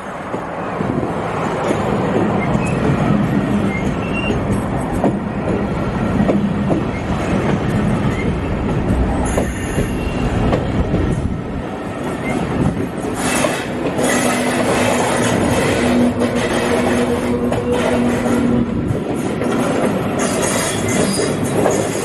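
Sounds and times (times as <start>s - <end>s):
steel wheels rumbling on rails: 0.0s - 22.0s
high wheel squeals: 3.6s - 4.4s, 20.2s - 21.8s.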